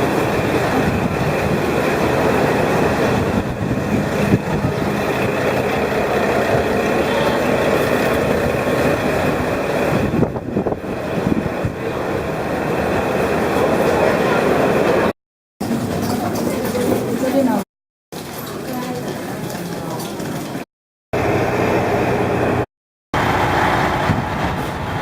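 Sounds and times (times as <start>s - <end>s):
train rumble and rattle inside car: 0.0s - 17.4s.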